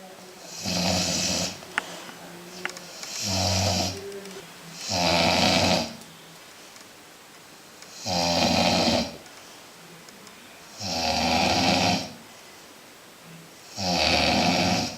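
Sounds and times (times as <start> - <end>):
dog snoring loudly: 0.4 - 1.6, 3.0 - 4.0, 4.8 - 6.0, 7.9 - 9.2, 10.8 - 12.2, 13.7 - 14.9.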